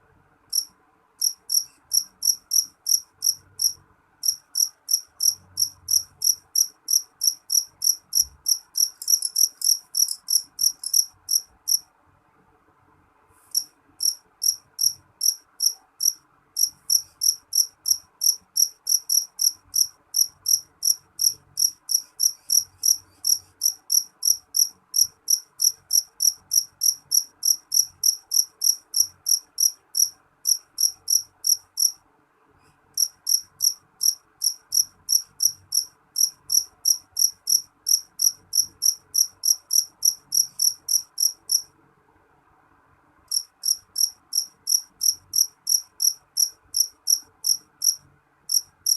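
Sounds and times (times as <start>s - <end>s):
cricket chirping: 0.5s - 11.8s, 13.5s - 32.0s, 33.0s - 41.7s, 43.3s - 48.9s.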